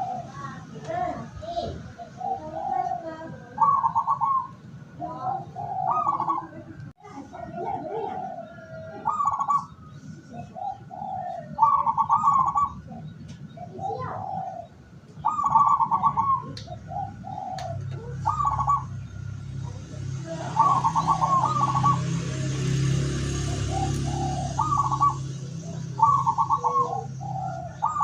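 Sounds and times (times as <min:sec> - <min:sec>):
doves cooing: 0:00.0 - 0:28.0
low hum with hiss: 0:00.0 - 0:28.0
small bird chirping: 0:07.3 - 0:28.0.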